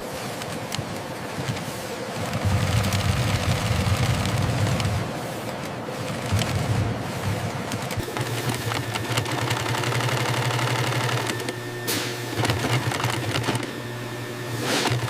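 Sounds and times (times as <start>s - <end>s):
machine motor hum: 5.9s - 15.0s
stitching machine needle clatter: 7.7s - 15.0s.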